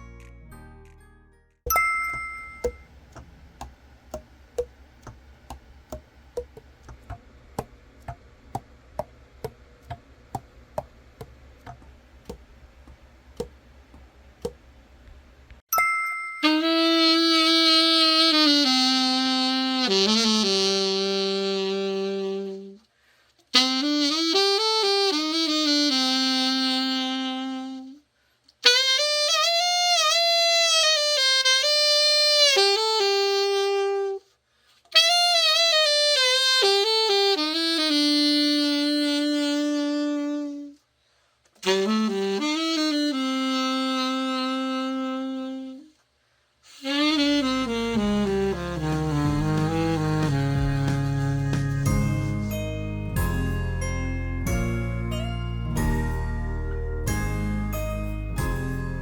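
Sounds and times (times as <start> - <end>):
alto saxophone melody: 16.4 - 22.9, 23.5 - 40.9, 41.6 - 46.0, 46.6 - 59.0.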